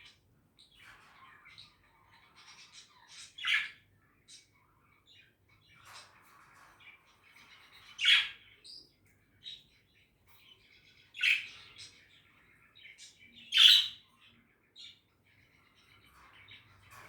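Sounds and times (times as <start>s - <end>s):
budgerigar warbling and chirps: 13.5s - 14.0s.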